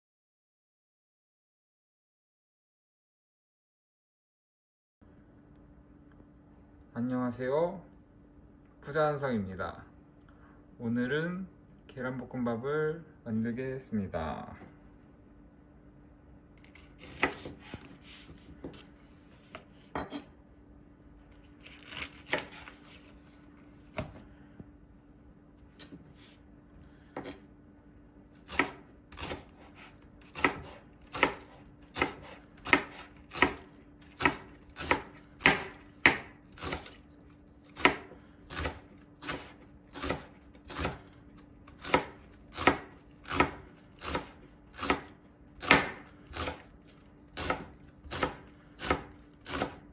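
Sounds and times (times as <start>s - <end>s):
knife chopping on cutting board: 16.6s - 18.9s, 21.8s - 22.8s, 28.4s - 37.0s, 37.6s - 46.7s, 47.4s - 49.9s.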